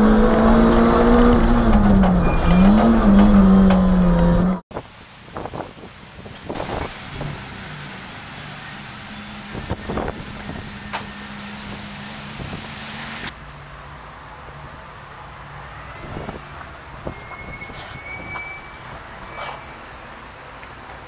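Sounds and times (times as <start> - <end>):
hiss: 6.4 - 13.3.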